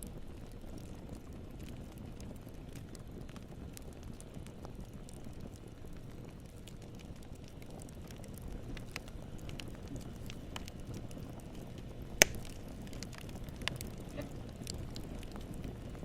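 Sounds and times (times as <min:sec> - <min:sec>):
campfire flames rumbling: 0:00.0 - 0:16.0
wood crackling: 0:00.0 - 0:16.0
loud fire pop: 0:12.2 - 0:12.6.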